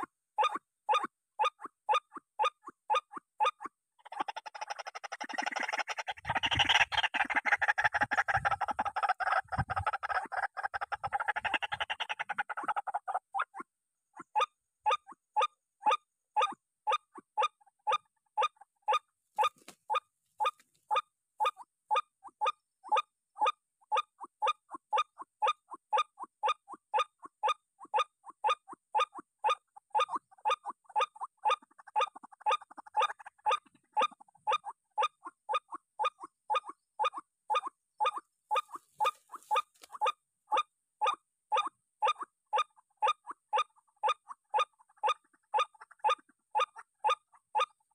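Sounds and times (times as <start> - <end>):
waterhen harsh calls: 4.0 - 13.2.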